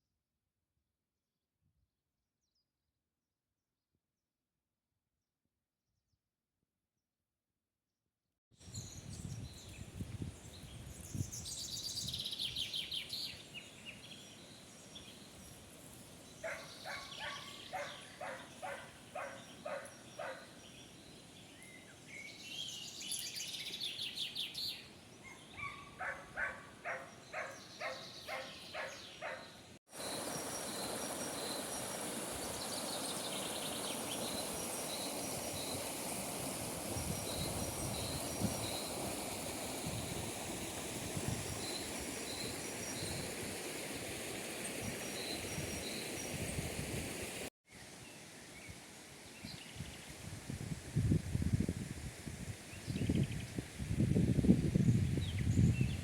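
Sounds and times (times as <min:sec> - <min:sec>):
birds singing: 0:16.2 - 0:31.7
rushing wind or water: 0:29.9 - 0:56.0.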